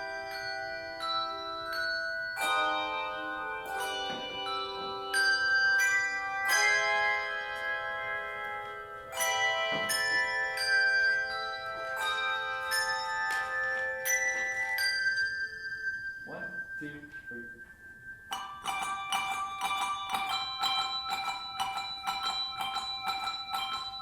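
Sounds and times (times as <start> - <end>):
handbell choir ringing chords: 0.0 - 24.0.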